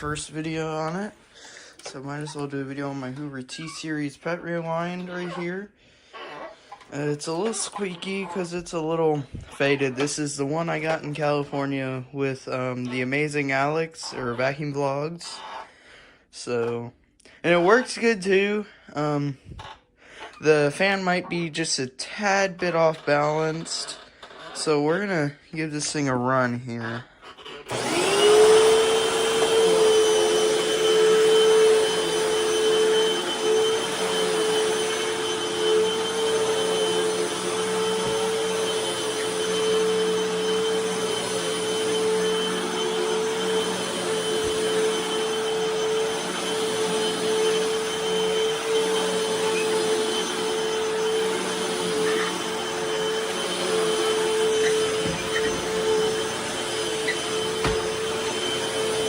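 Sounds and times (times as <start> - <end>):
vacuum cleaner motor whine: 0.0 - 1.1, 27.6 - 59.0.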